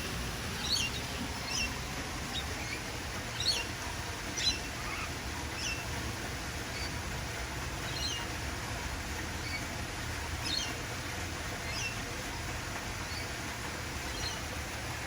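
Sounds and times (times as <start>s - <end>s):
steady low background noise: 0.0s - 15.0s
parrots chirping: 0.6s - 6.0s, 6.7s - 7.0s, 7.9s - 8.3s, 10.4s - 10.8s, 11.6s - 12.0s, 14.1s - 14.4s.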